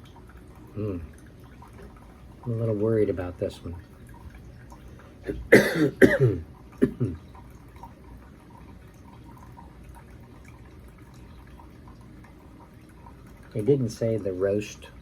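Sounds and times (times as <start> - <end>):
coffee maker trickling and dripping: 0.0 - 15.0
man coughing: 5.2 - 7.2.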